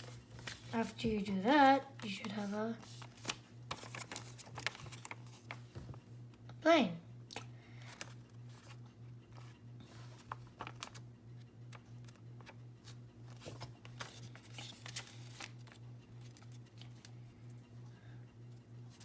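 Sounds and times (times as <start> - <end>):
paper rustling and creasing: 0.0 - 1.3, 2.0 - 6.0, 7.8 - 17.1
faint pulsing low hum: 0.0 - 19.0.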